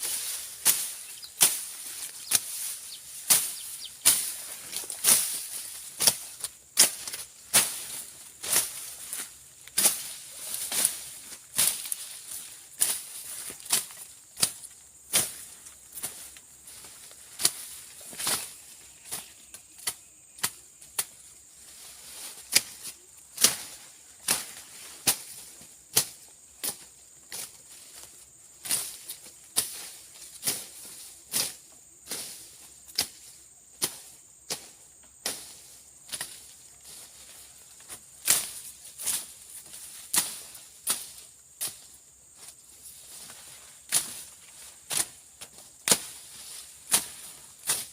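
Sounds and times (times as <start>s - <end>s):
machete chopping through brush: 0.0s - 8.8s, 9.7s - 11.0s, 23.4s - 26.8s, 40.1s - 41.9s, 43.9s - 47.9s.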